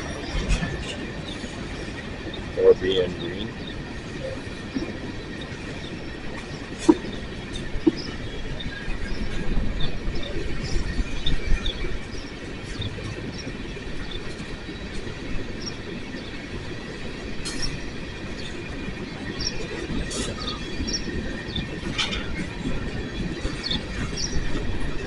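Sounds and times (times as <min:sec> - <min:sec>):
train cars rumbling: 0:00.0 - 0:25.0
train wheel clicks: 0:16.6 - 0:25.0.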